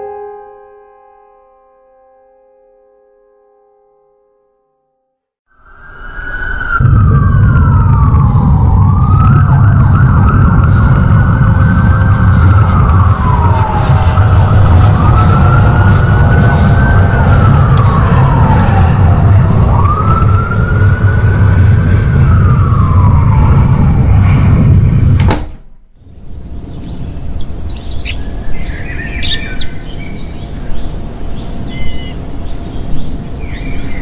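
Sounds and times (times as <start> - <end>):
siren wailing: 5.5 - 25.0, 26.7 - 34.0
low rumble: 6.6 - 34.0.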